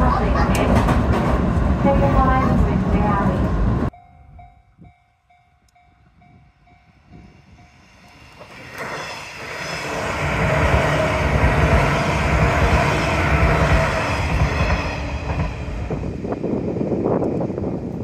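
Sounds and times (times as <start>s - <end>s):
electric train passing: 0.0s - 18.0s
level crossing warning bell: 3.9s - 8.4s.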